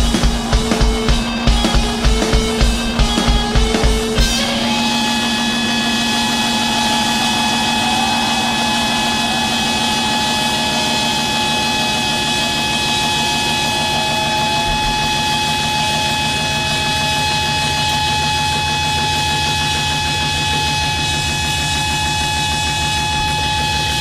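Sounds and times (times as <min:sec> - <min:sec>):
drum hits: 0:00.0 - 0:04.7
distorted guitar drone: 0:00.0 - 0:24.0.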